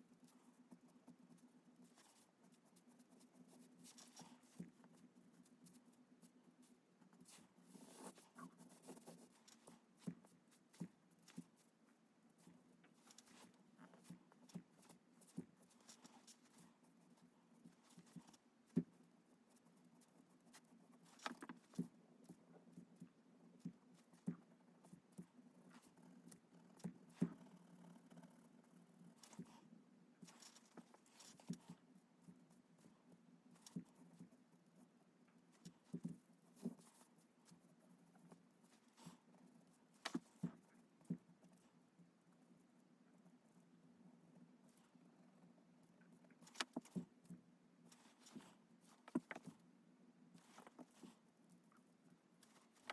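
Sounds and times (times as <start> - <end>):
soft taps drawing on paper: 0.0 - 32.9, 33.6 - 41.8, 46.2 - 49.6.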